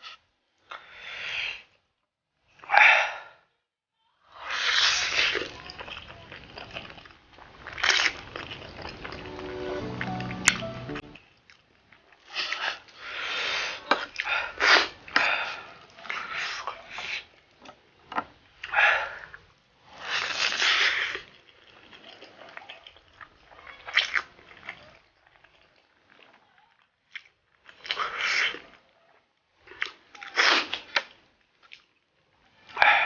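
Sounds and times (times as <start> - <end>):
noodles being slurped: 4.4 - 10.1, 11.5 - 17.6, 18.6 - 32.8
wet chewing: 4.9 - 10.1, 20.0 - 32.0.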